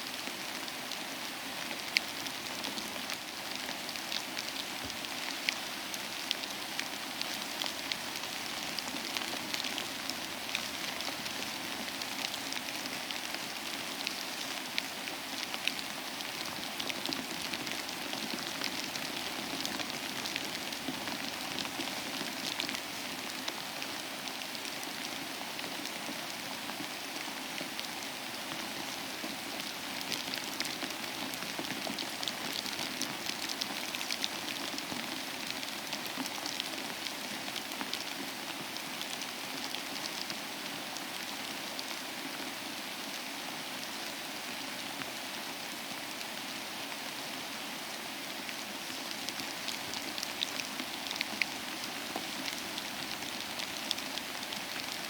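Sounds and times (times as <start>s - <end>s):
rain on a surface: 0.0s - 55.0s.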